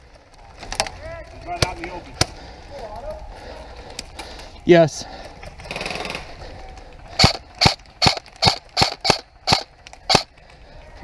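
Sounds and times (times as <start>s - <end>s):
airsoft gun shots: 7.2s - 10.3s.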